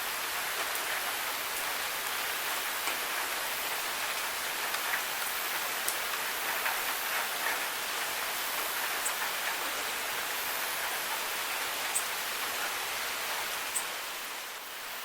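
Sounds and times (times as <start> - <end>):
steady rain falling: 0.0 - 15.0
sharp drip ticks: 4.1 - 12.8.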